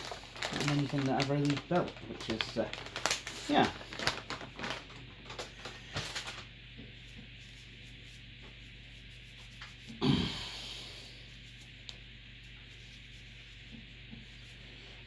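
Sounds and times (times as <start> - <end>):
rubbing strokes: 7.2 - 10.0.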